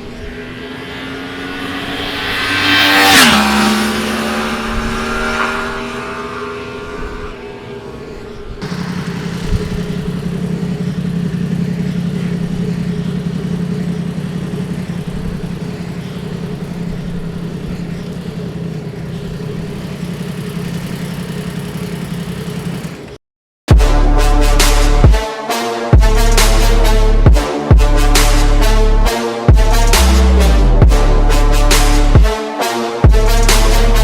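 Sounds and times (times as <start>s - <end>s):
motorcycle engine running: 7.8s - 25.2s, 26.0s - 32.3s, 33.1s - 34.0s.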